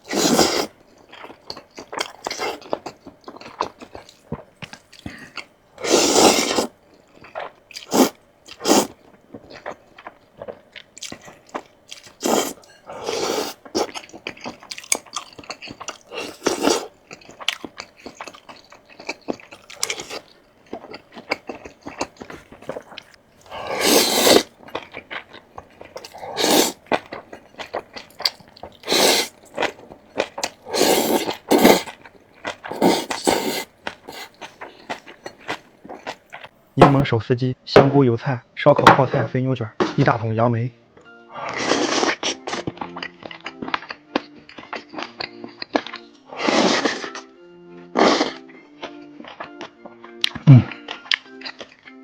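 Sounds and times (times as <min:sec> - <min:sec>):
person chewing crunchy food: 0:00.0 - 0:37.0.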